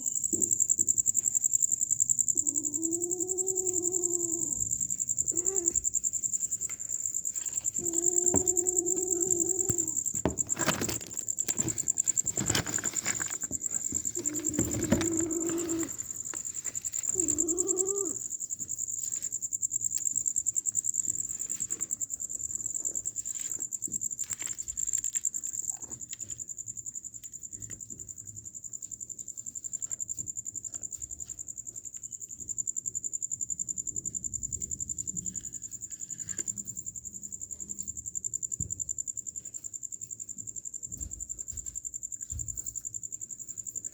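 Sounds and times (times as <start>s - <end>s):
crickets chirring: 0.0s - 43.9s
short animal calls: 17.0s - 18.2s.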